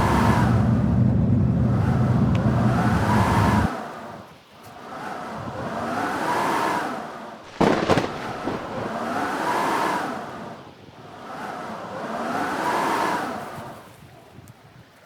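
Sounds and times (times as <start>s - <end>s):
blizzard wind howling: 0.0s - 14.8s
sharp loud crack: 7.4s - 9.5s.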